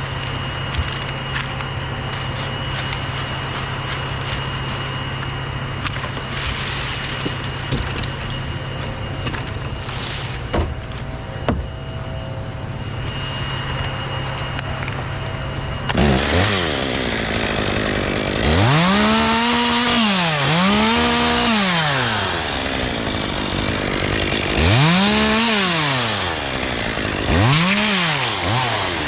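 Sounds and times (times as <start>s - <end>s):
engine running steadily: 0.0s - 18.5s.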